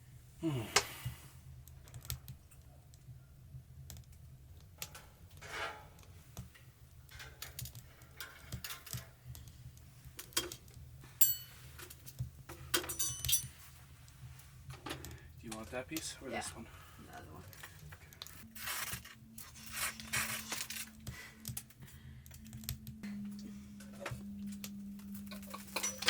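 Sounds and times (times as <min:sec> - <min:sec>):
ringing metallic clink: 0:11.2 - 0:11.7, 0:12.8 - 0:13.5.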